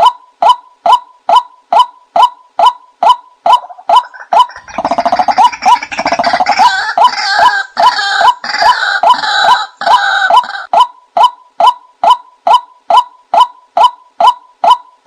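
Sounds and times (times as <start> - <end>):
bubbling gargling bird chorus: 4.1 - 6.9.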